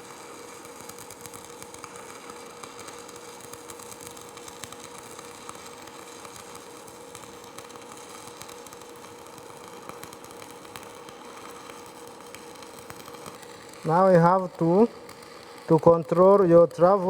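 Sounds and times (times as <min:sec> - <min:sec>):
welding arc crackling: 0:00.0 - 0:17.0
steady hum: 0:13.3 - 0:17.0.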